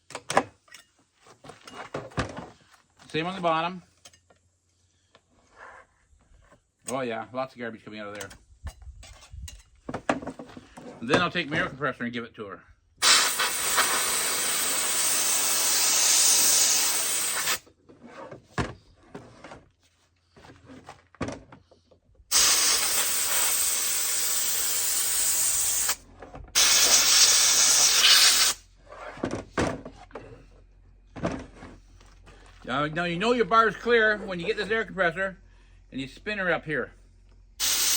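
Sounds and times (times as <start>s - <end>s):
compressed air hissing: 13.0s - 17.6s, 22.3s - 26.0s, 26.6s - 28.6s, 37.6s - 37.9s.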